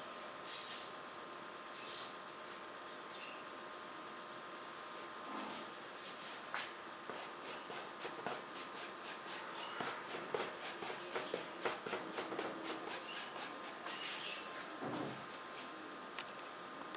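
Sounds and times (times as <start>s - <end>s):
paintbrush scratching on paper: 7.1s - 14.3s.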